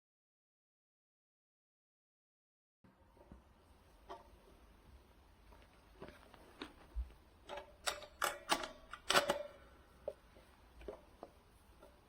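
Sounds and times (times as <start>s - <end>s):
faint low hum: 2.9s - 12.0s.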